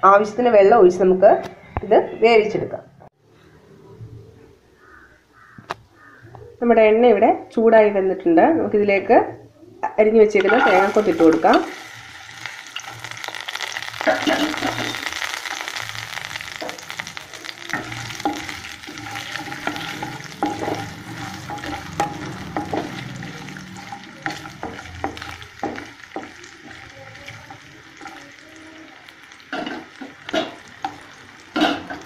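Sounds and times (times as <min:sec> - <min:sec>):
coconut sizzling in hot oil: 0:10.4 - 0:32.0.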